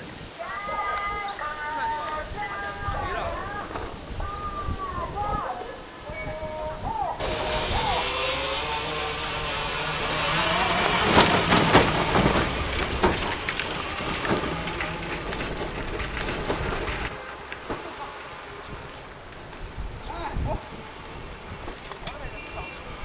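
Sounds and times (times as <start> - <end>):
train engine rumble: 7.0 - 23.0
train wheels clattering: 7.2 - 23.0
sharp knocks: 10.0 - 18.0.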